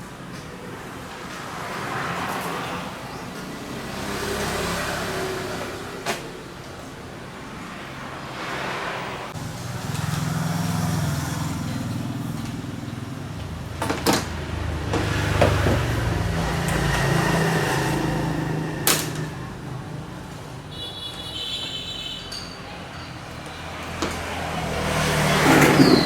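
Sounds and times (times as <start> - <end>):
vehicle engine humming: 9.3 - 20.8.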